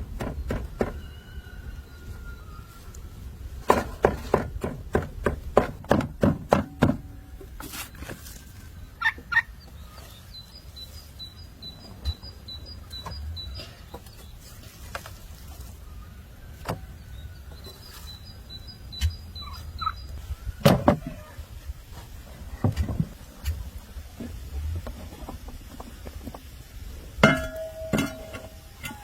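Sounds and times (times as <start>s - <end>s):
scattered knocks: 0.0s - 1.0s, 3.7s - 7.1s
high bird chirps: 17.6s - 20.2s.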